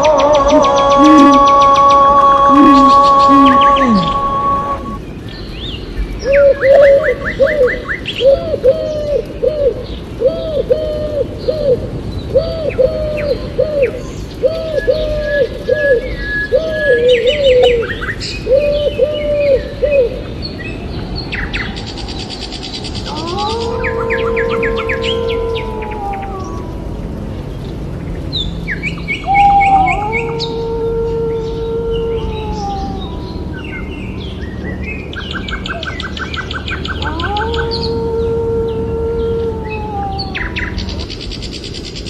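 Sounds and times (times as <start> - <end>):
low cooing bird calls: 0.0 - 27.6, 28.3 - 42.0
long rising bird call: 0.0 - 42.0
bird chirps and trills: 32.2 - 38.3.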